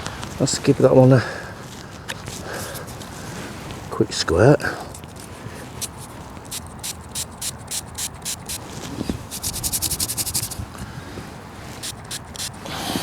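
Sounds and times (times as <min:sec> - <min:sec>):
spray bottle hissing bursts: 0:02.4 - 0:03.0, 0:04.9 - 0:08.7, 0:09.3 - 0:10.6, 0:11.8 - 0:13.0.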